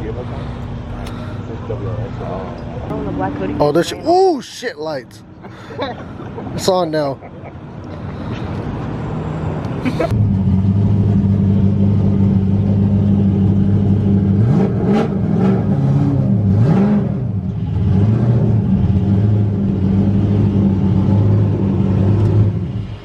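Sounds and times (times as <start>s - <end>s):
car engine revving: 7.9s - 23.0s.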